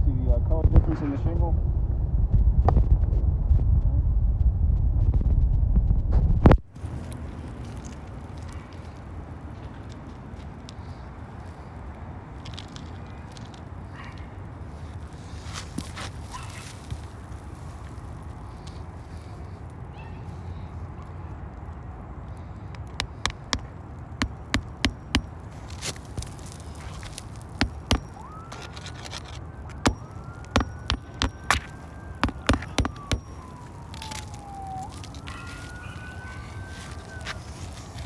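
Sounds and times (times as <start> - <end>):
hammer nailing shingle: 22.8 - 35.0
faint siren: 26.2 - 38.0.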